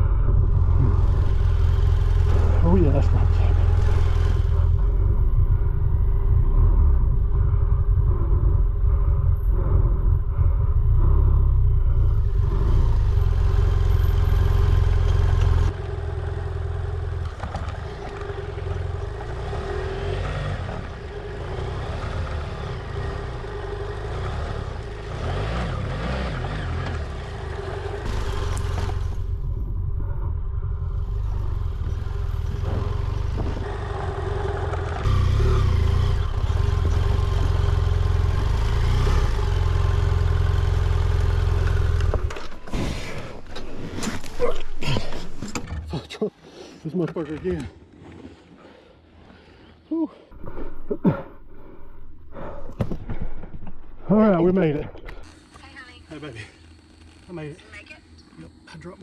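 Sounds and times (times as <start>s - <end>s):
motorcycle engine running: 0.0s - 42.7s.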